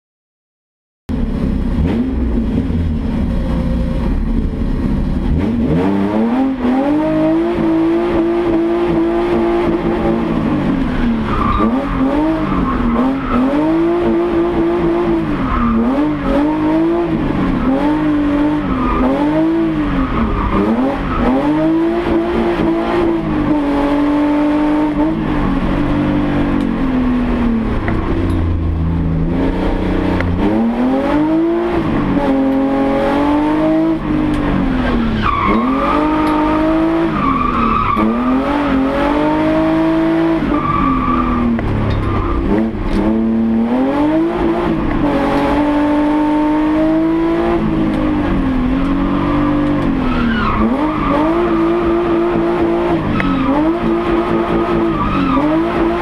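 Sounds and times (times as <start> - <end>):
race car engine revving: 1.1 - 56.0.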